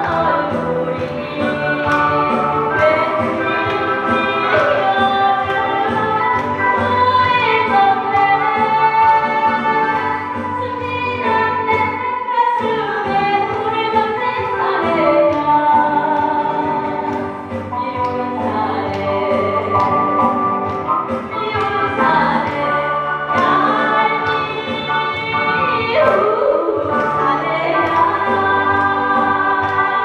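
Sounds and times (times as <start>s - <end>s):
backing band playing: 0.0s - 12.1s, 13.0s - 30.0s
woman singing: 0.0s - 20.4s, 21.1s - 30.0s.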